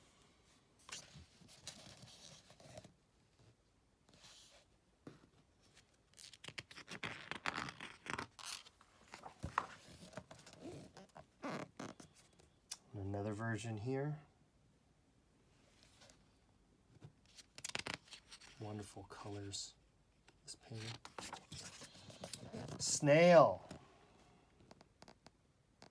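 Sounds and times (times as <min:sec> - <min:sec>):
book pages turning: 0:05.7 - 0:11.0, 0:17.3 - 0:18.6, 0:20.7 - 0:22.8.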